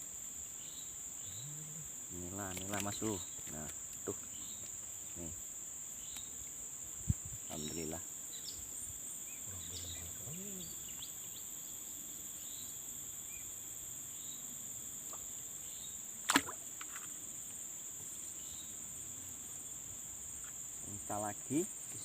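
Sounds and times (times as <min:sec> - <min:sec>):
insects chorus: 0:00.0 - 0:22.0
sharp click: 0:16.3 - 0:17.1.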